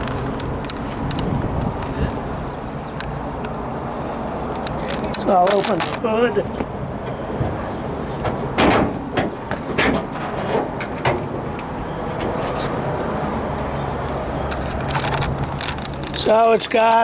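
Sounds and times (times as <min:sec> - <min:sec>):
metal clicks and clunks of hood: 0:04.6 - 0:12.5.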